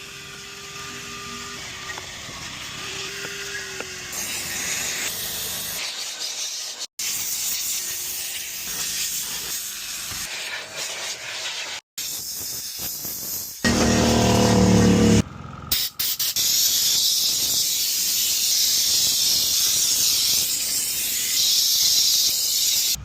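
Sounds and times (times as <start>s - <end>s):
cleaning tool spraying hiss: 4.1s - 13.6s, 15.7s - 23.0s.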